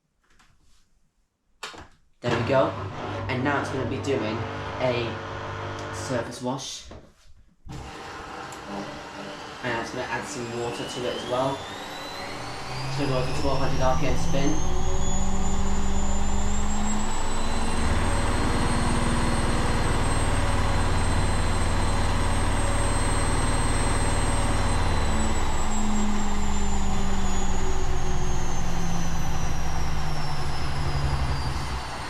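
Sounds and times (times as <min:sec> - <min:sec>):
washing machine spinning: 0:02.3 - 0:06.0, 0:11.6 - 0:32.0.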